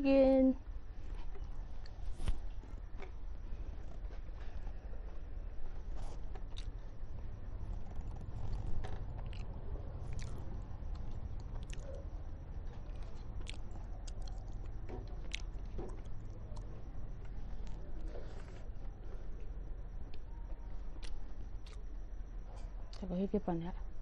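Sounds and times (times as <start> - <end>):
steady low hum: 0.0 - 24.0
close-up chewing: 1.1 - 22.0
wet mouth clicks and smacks: 11.0 - 12.0, 13.0 - 16.7.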